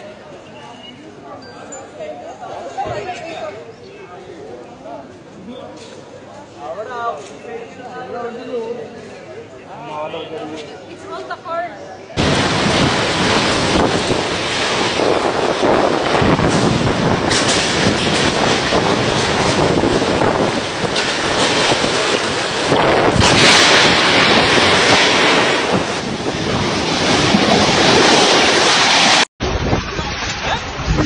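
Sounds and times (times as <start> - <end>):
storm wind gusting on microphone: 12.2 - 31.0.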